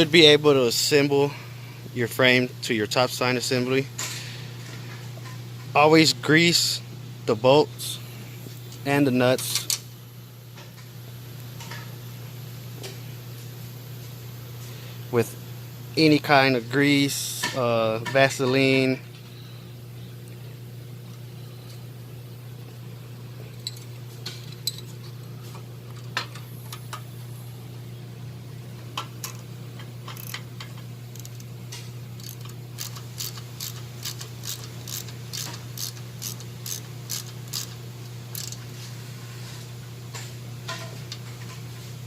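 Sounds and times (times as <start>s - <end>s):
steady low hum: 0.0s - 42.0s
ratchet wrench clicking: 30.1s - 30.4s, 31.1s - 31.5s, 32.2s - 38.6s
metal parts clicking: 30.1s - 31.5s, 32.2s - 38.6s.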